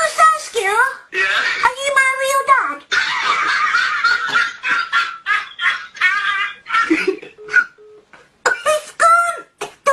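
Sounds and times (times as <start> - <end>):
person laughing: 3.0 - 7.6.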